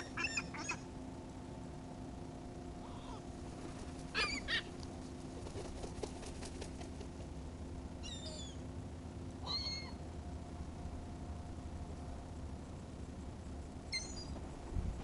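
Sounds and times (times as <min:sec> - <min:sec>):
seagulls crying: 0:00.0 - 0:00.9, 0:04.1 - 0:04.7, 0:09.4 - 0:10.0
steady low hum: 0:00.0 - 0:15.0.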